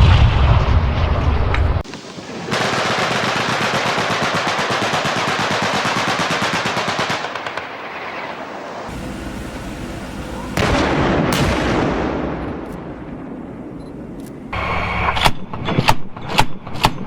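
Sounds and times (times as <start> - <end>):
loud blast: 0.0 - 1.8, 8.9 - 13.7
machine gun burst: 2.5 - 7.6, 8.9 - 13.0
long rolling rumble: 8.9 - 14.6
sharp crack: 10.5 - 17.0.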